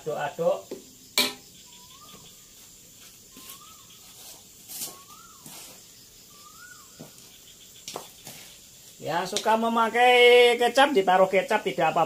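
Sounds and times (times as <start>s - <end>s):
high insect hum: 0.0s - 12.0s
bird whistling: 1.4s - 2.6s, 3.3s - 8.4s.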